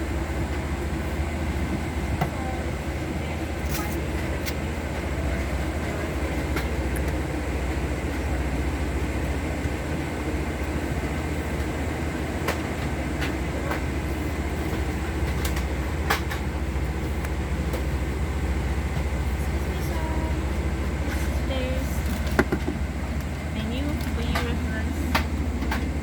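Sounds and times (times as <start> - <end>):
airliner cabin rumble: 0.0 - 26.0.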